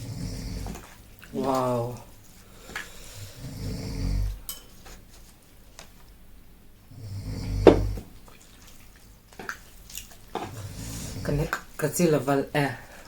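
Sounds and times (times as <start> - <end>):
utensils clinking against dishes: 4.4 - 4.9.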